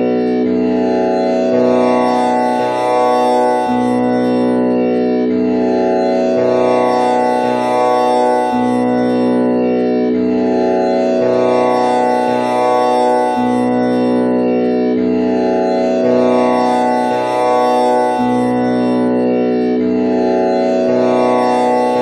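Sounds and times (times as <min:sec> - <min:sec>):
buzzing drone: 0:00.0 - 0:22.0.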